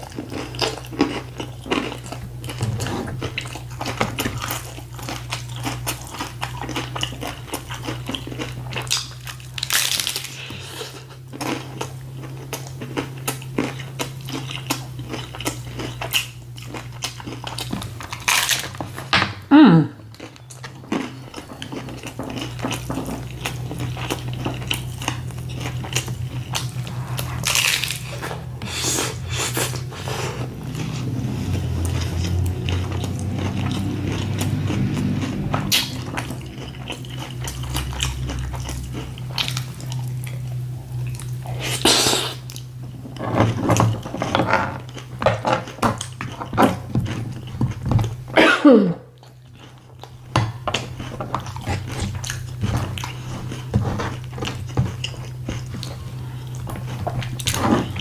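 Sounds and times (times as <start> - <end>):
crunching bites of taco: 0.0 - 19.1, 20.1 - 42.8, 49.2 - 58.0.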